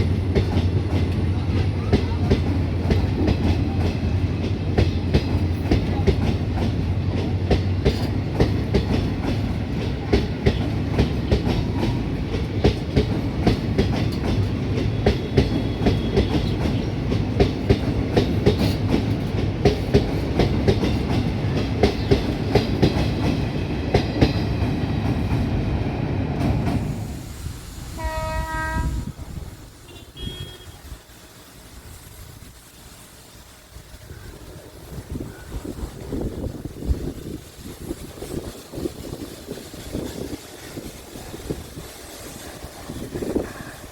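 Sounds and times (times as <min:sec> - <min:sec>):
train wheels clattering: 0:00.0 - 0:25.7, 0:34.6 - 0:43.9
train horn: 0:28.0 - 0:31.0.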